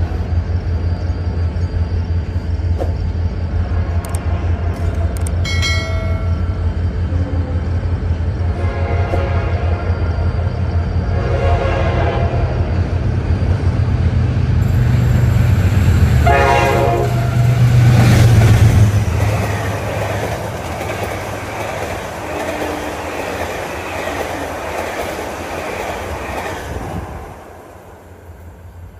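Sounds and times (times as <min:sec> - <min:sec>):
diesel locomotive rumble: 0:00.0 - 0:28.9
train horn blast: 0:08.4 - 0:09.9, 0:11.1 - 0:12.6, 0:16.2 - 0:17.8
wheels clacking over rail joints: 0:17.2 - 0:27.1.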